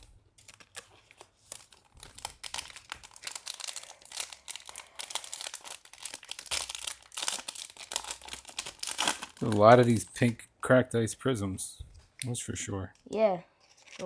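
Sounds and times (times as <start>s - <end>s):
plastic wrappers crinkling: 0.0s - 10.4s.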